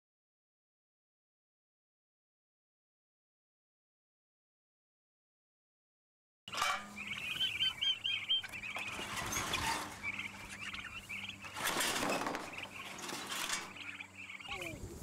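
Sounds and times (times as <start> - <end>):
birds chirping: 6.5 - 15.0.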